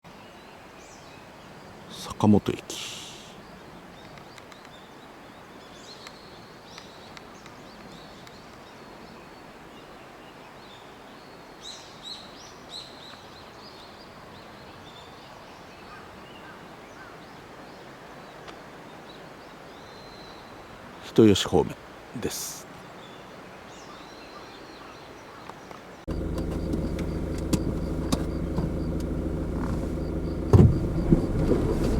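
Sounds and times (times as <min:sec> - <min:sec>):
outdoor background hiss: 0:00.1 - 0:31.9
small birds chirping: 0:00.3 - 0:09.5, 0:22.8 - 0:31.9.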